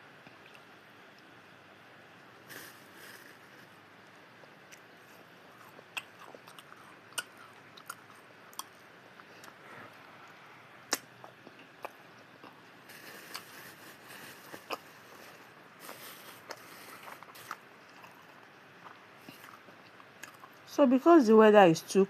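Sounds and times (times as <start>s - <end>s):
faint steady hiss: 0.0s - 22.0s
eating clicks and crunches: 4.4s - 10.1s, 10.9s - 20.7s.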